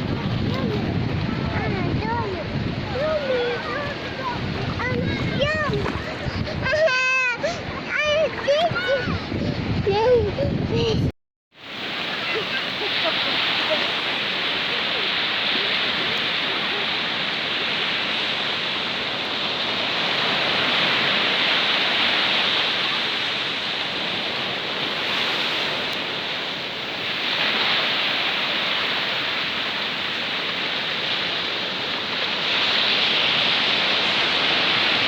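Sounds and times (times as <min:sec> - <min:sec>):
stream falling into the sea: 0:11.6 - 0:35.0.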